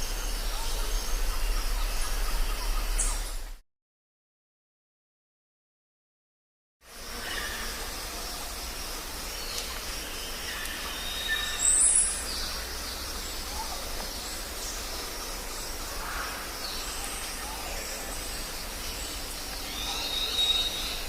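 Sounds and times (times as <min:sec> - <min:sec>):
steady hiss: 0:06.9 - 0:21.0.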